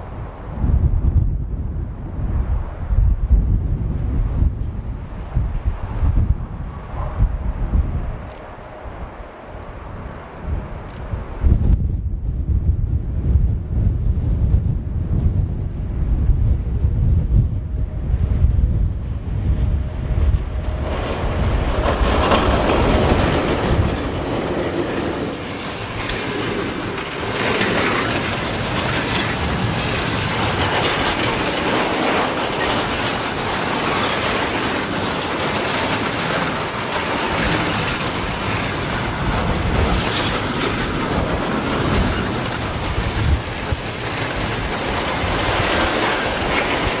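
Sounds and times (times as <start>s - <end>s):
train wheels clattering over rails: 19.1s - 47.0s.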